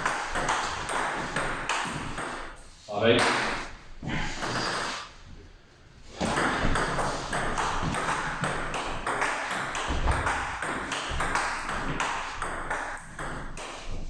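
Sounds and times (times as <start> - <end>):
table tennis ball hits: 0.0 - 2.6, 3.2 - 3.7, 6.2 - 14.0
ball bouncing on table: 6.2 - 14.0.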